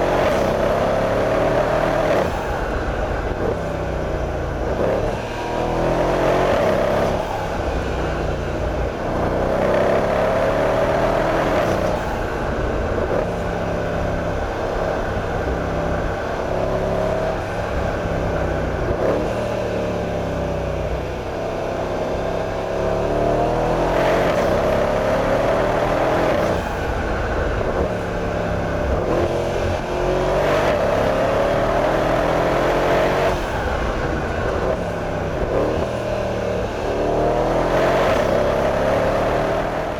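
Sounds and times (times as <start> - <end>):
car engine revving: 22.2 - 39.9.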